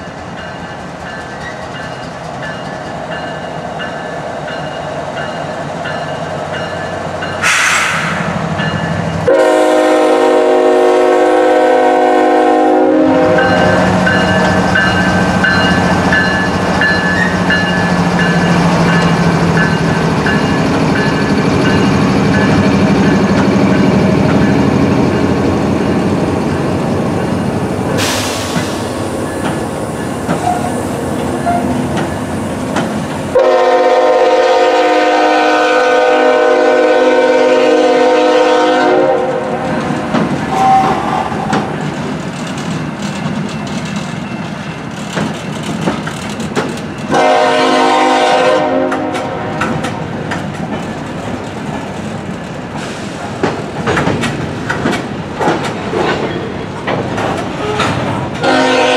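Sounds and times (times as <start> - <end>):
freight train rumbling: 0.0 - 58.9
locomotive air horn blasts: 9.2 - 14.0, 33.3 - 39.7, 40.5 - 41.3, 47.1 - 49.6, 58.4 - 58.9.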